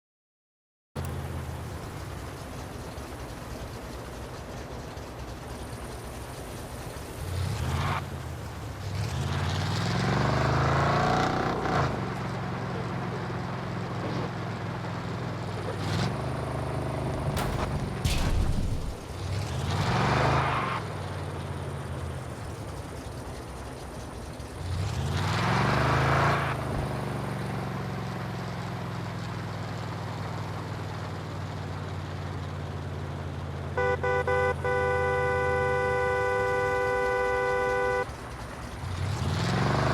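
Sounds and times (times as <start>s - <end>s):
truck engine revving: 7.0s - 22.6s, 24.4s - 28.0s, 33.8s - 39.9s
steady horn-like tone: 33.8s - 38.1s.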